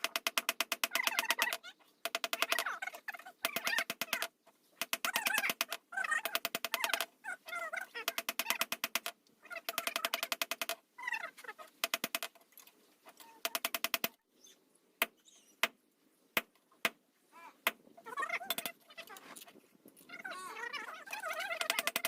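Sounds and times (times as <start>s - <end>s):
sharp knocks: 0.0s - 2.6s, 8.1s - 9.1s, 9.7s - 10.8s, 11.8s - 12.3s
bird calling: 0.0s - 12.1s.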